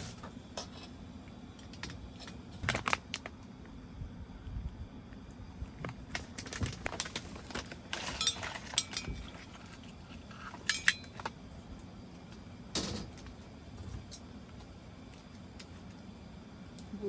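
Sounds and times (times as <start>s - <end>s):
dishes and utensils clinking: 8.0s - 11.2s.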